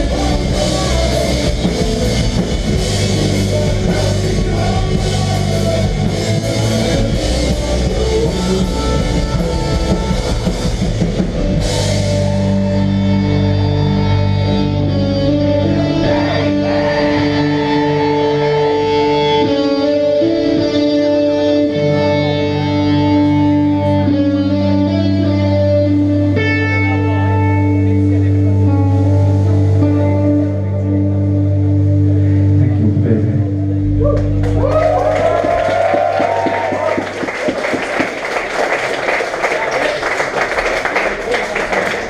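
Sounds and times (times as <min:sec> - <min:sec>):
drum kit playing: 0:00.0 - 0:13.2
distorted guitars: 0:00.0 - 0:38.3.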